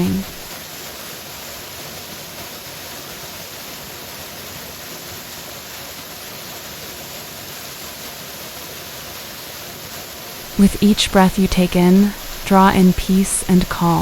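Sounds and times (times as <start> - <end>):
waterfall rushing: 10.4 - 14.0.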